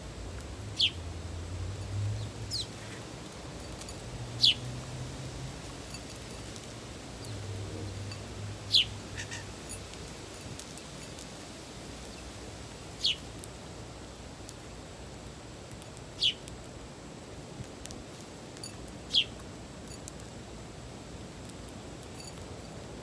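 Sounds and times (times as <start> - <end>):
songbird chirping: 0.6 - 1.1, 1.7 - 4.8, 6.0 - 10.6, 11.9 - 13.3, 16.1 - 16.5, 19.0 - 19.5.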